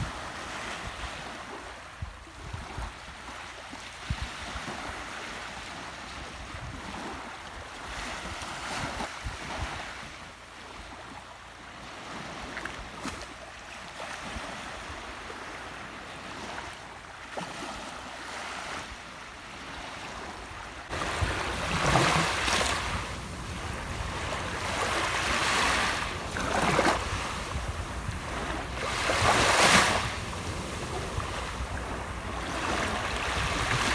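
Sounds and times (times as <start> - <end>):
sea waves breaking on shore: 11.6 - 33.9.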